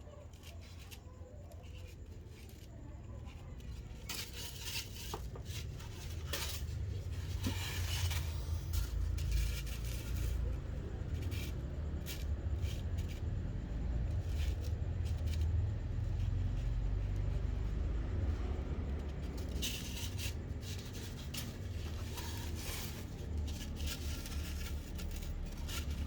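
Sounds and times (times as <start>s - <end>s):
crinkling and light clicks: 0.0s - 26.0s.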